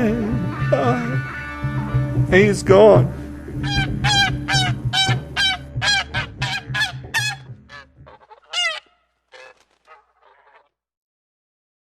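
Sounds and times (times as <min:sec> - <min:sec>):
background music: 0:00.0 - 0:08.8
honking bird calls: 0:03.2 - 0:10.7.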